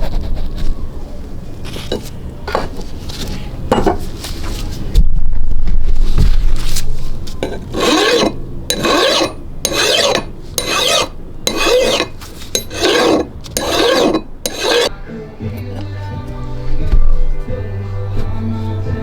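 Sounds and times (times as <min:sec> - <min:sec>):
file rasping on metal: 0:07.4 - 0:14.9.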